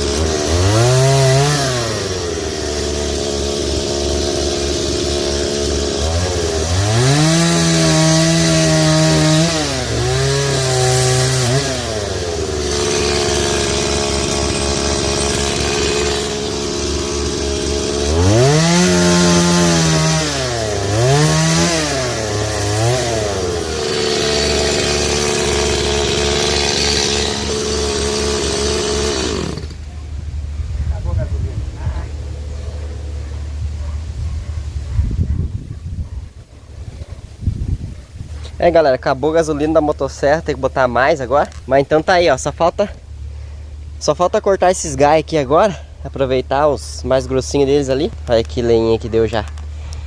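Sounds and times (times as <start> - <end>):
chainsaw revving and cutting: 0.0 - 29.9, 38.4 - 50.0.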